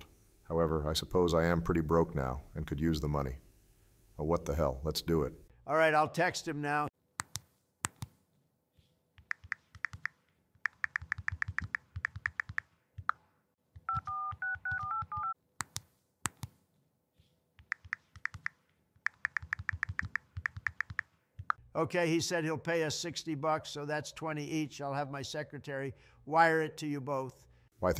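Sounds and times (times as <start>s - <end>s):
phone keyboard typing clicks: 9.2s - 13.2s, 13.8s - 16.6s, 17.6s - 21.6s
sharp clicks: 9.2s - 13.2s, 17.6s - 21.6s
keypad dial tones: 13.8s - 15.4s.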